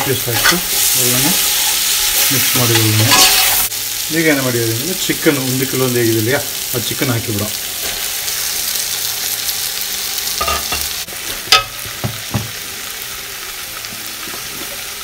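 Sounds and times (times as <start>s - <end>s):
masala sizzling in metal pot: 0.0s - 15.0s
metal ladle scraping pot: 2.7s - 3.7s.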